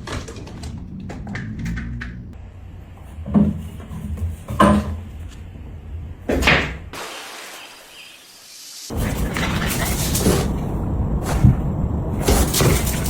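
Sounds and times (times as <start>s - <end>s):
low rumble: 0.0s - 4.0s, 8.9s - 13.0s.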